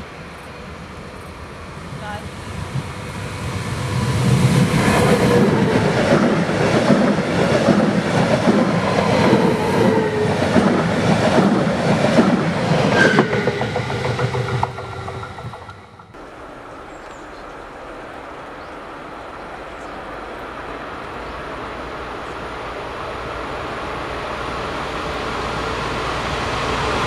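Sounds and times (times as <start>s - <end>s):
train rumbling and rushing past: 0.0s - 27.0s
wheels clicking over rail joints: 10.2s - 18.2s.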